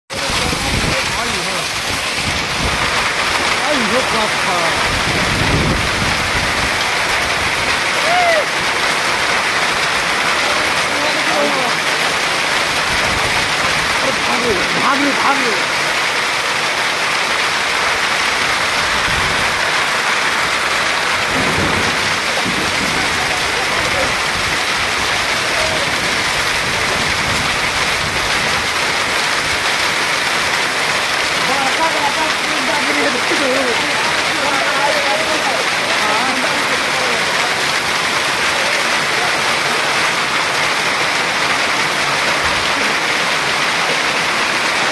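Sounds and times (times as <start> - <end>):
heavy rain and hail: 0.1 - 44.9.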